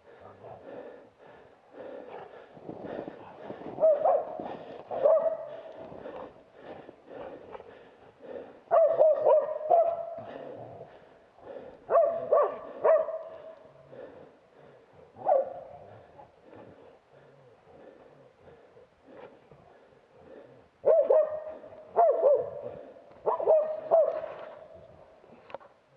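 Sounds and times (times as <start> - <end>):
dog barking: 3.8 - 5.7, 8.7 - 10.4, 11.9 - 13.7, 15.2 - 15.7, 20.8 - 24.8.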